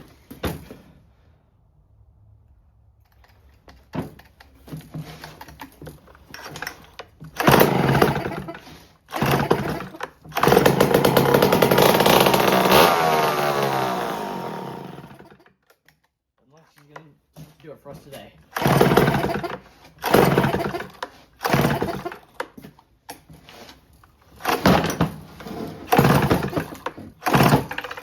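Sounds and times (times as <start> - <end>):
chainsaw pull-start: 5.2 - 15.5, 18.5 - 22.6, 23.7 - 28.0
chainsaw engine running: 7.4 - 15.4, 18.5 - 22.2, 25.9 - 28.0.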